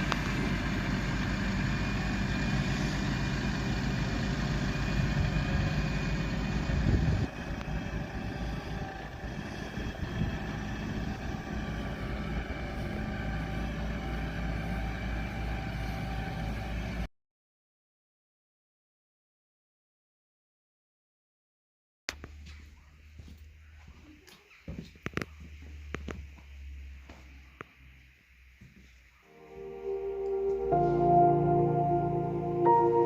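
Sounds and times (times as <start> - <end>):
vehicle engine running: 0.0 - 17.1, 25.0 - 33.0.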